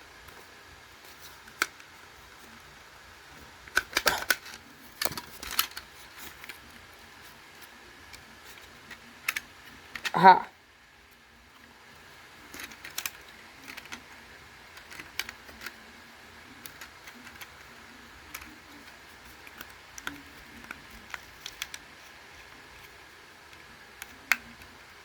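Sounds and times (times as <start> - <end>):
plastic clicks and taps: 23.5 - 24.8.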